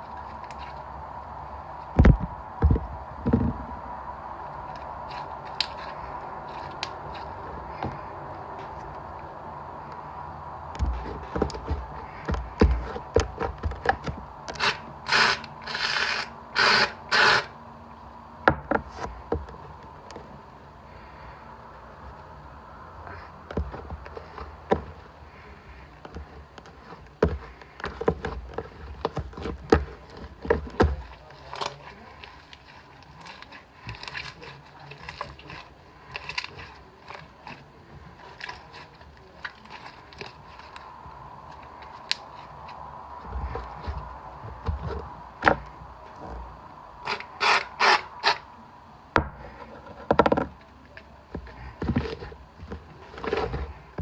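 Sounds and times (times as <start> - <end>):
hands working slime: 23.1 - 45.8.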